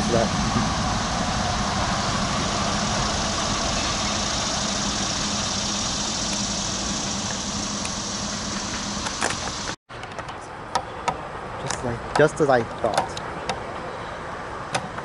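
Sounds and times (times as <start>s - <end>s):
diesel locomotive engine humming: 0.0s - 15.0s.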